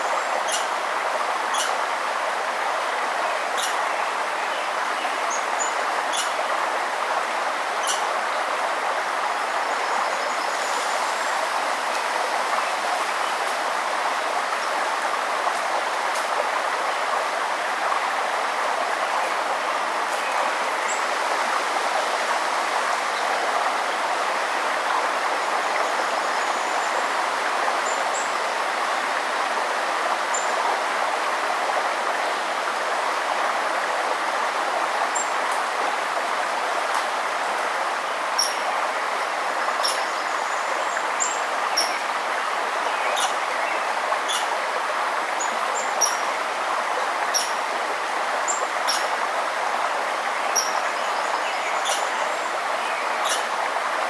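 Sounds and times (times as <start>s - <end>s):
stream rushing: 0.0s - 54.0s.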